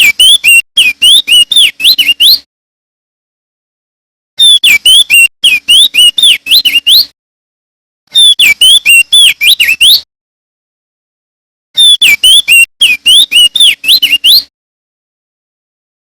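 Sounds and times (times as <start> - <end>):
bird singing whistled notes: 0.0 - 2.5, 4.4 - 7.1, 8.1 - 10.1, 11.8 - 14.5.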